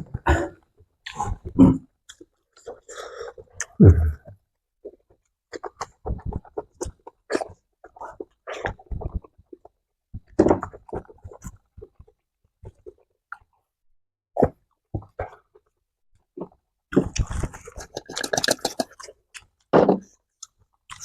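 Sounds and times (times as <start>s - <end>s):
crunchy chewing: 17.0s - 19.6s.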